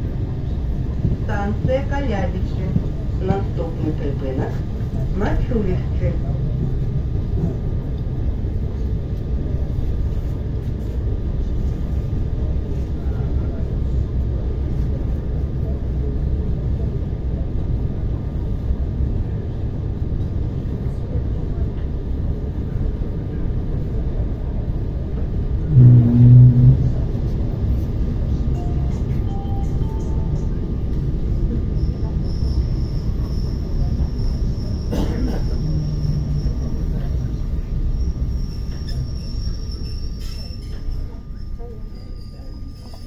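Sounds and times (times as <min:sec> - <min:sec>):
train wheels rumbling: 0:00.0 - 0:43.0
low tone pulses: 0:25.6 - 0:27.4.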